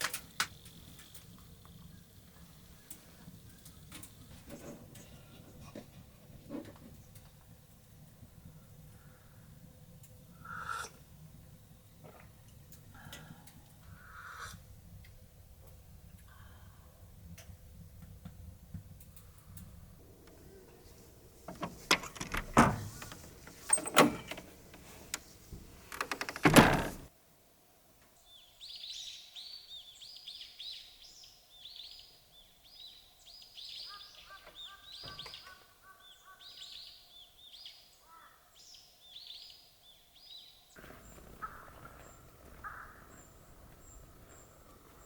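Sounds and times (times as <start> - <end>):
small birds chirping: 0.2 - 22.2, 28.1 - 45.0
sharp knocks and clicks: 21.5 - 25.3.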